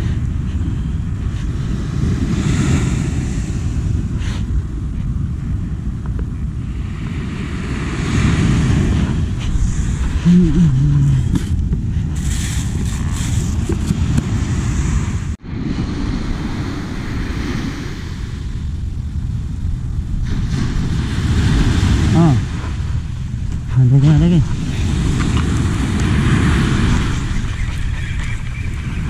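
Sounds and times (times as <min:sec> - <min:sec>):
surf washing up beach: 0:00.0 - 0:05.4, 0:06.5 - 0:29.0
wind buffeting microphone: 0:00.0 - 0:29.0.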